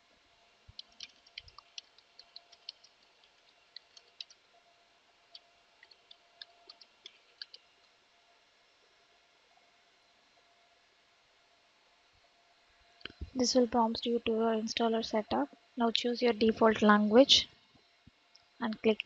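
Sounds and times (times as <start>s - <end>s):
keyboard typing: 0.8s - 4.4s, 5.3s - 7.6s.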